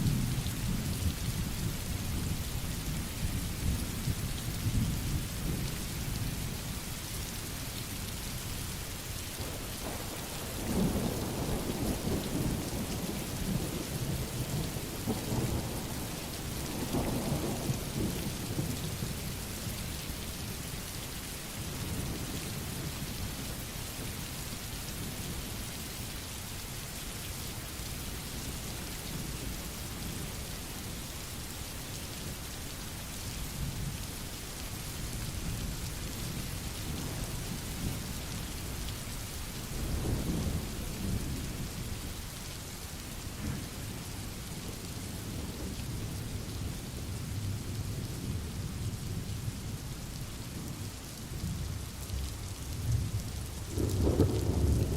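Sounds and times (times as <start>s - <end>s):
steady rain falling: 0.0s - 54.9s
thunder rumbling: 52.8s - 54.9s.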